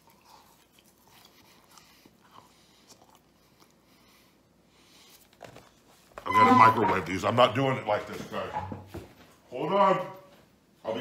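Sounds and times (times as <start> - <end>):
man chewing fries: 0.0 - 6.0.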